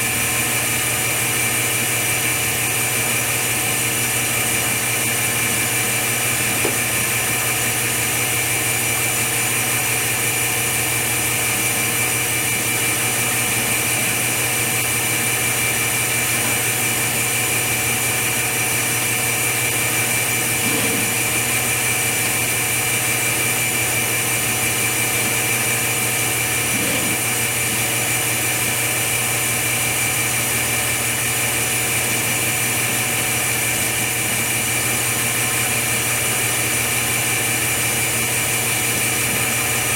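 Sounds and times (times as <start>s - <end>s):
machine motor humming: 2.7s - 39.9s.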